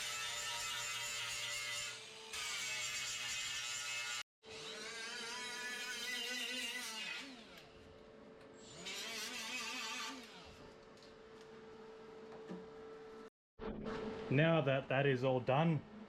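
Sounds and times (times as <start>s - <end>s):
grinder whining on steel: 0.0s - 8.0s, 8.6s - 10.8s.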